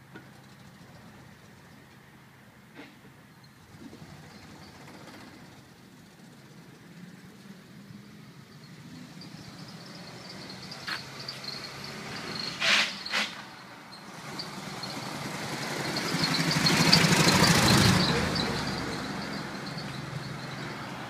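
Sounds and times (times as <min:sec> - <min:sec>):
road noise: 0:00.0 - 0:21.0
truck engine hum: 0:00.0 - 0:21.0
loud hissy bursts: 0:12.5 - 0:13.5.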